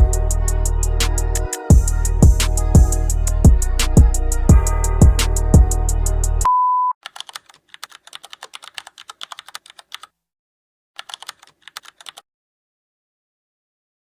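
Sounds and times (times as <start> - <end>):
electronic beep: 6.4 - 7.0
computer keyboard typing: 7.0 - 10.1, 11.0 - 12.2.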